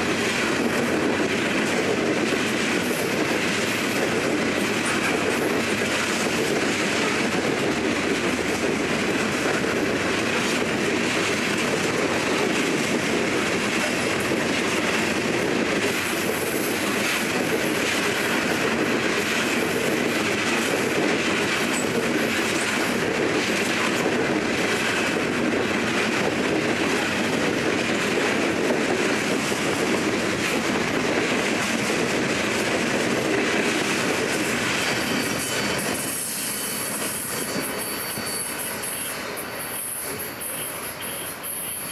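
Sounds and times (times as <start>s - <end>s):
train cars rolling past: 0.0s - 41.9s.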